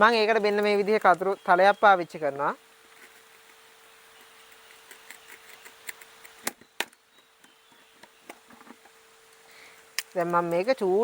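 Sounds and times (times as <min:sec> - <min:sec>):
scissors scraping plastic pot: 0:04.2 - 0:06.5.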